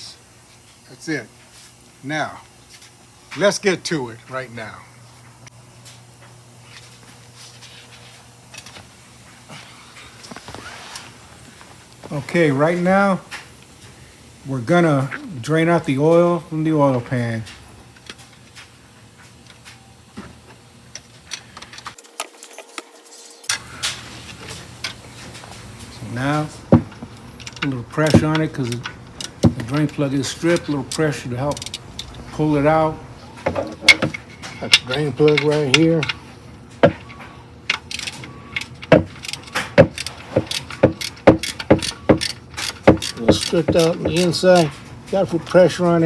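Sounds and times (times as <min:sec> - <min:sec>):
hand tools clinking on metal: 0:26.0 - 0:32.8, 0:33.5 - 0:36.2, 0:37.7 - 0:45.2
metallic clicks of hand tools: 0:37.7 - 0:44.8.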